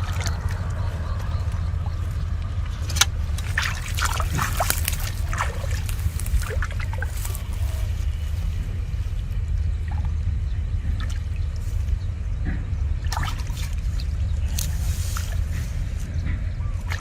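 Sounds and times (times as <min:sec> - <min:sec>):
low rumble: 0:00.0 - 0:17.0
water splashing and sloshing: 0:00.0 - 0:17.0.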